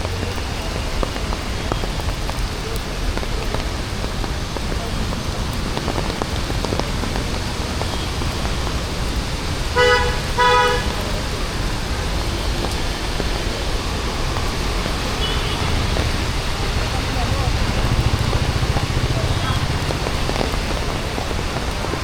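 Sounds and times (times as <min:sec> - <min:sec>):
rain hiss: 0:00.0 - 0:22.0
street traffic: 0:00.0 - 0:22.0
vehicle horn toots: 0:09.8 - 0:11.1, 0:15.2 - 0:16.0.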